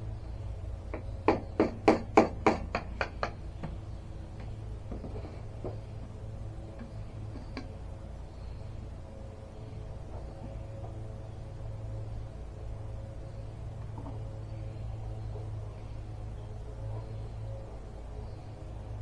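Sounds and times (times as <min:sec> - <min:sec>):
hammer tapping: 0:00.9 - 0:03.8.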